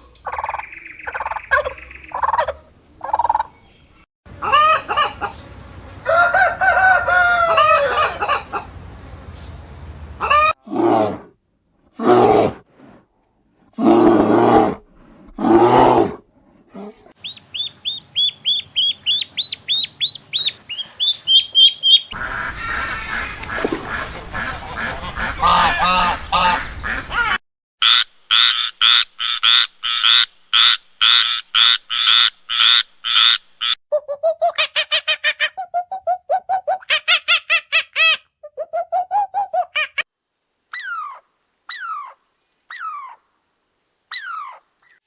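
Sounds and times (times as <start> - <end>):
high animal calls: 4.4 - 5.4, 6.0 - 8.8, 10.2 - 10.6, 17.2 - 23.4
animal calls: 4.4 - 8.8, 10.2 - 11.1, 17.2 - 23.6
animal roars: 10.6 - 11.4, 12.0 - 12.6, 13.8 - 17.1
high-pitched chirping: 17.2 - 22.2.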